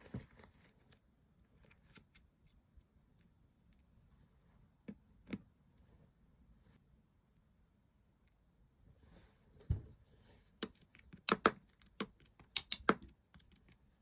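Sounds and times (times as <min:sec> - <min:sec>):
sharp clicks: 0:12.4 - 0:13.6.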